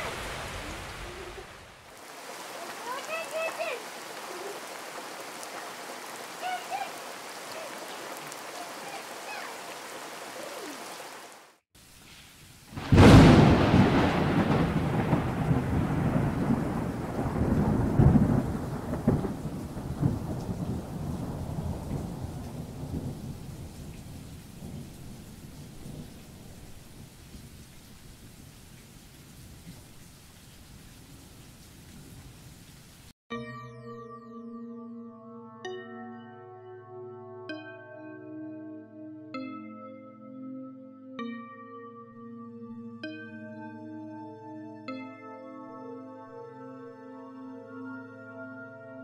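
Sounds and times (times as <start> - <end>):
steady rain: 0.0 - 33.2
thunder clap rolling: 12.7 - 27.6.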